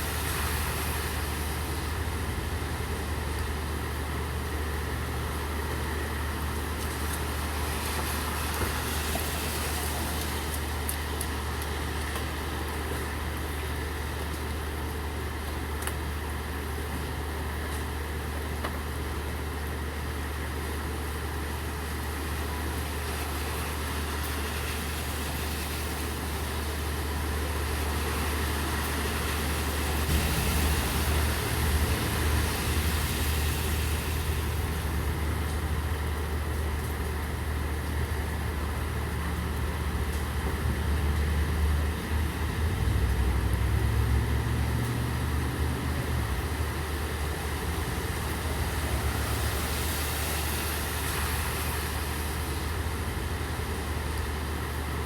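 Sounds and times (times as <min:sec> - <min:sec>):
rain hiss: 0:00.0 - 0:55.0.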